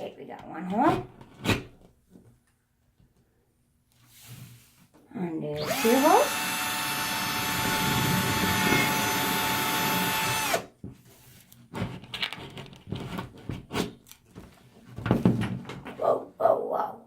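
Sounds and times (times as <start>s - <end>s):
power drill whining into wall: 5.6s - 10.7s.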